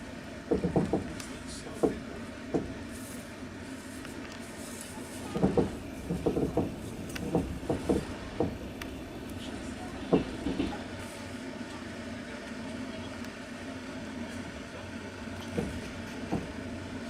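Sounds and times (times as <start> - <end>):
train running rumble: 0.0 - 17.0
train wheels clacking on rail joints: 0.5 - 2.8, 5.2 - 11.0, 15.4 - 16.7.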